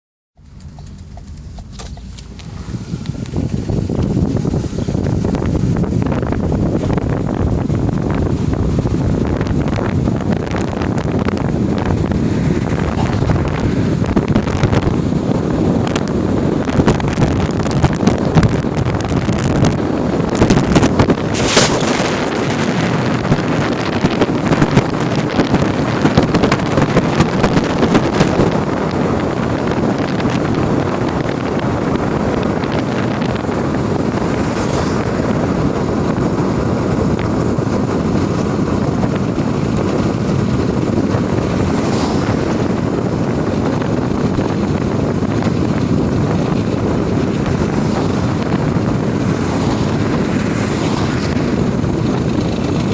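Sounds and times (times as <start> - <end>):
sharp clicks and knocks: 0.4 - 3.4
car road and engine noise: 0.4 - 52.9.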